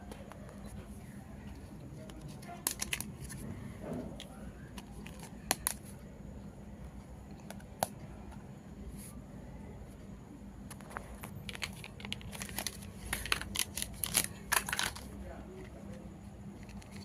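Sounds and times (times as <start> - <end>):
plastic toy pieces clicking: 2.6 - 3.1, 11.4 - 15.1.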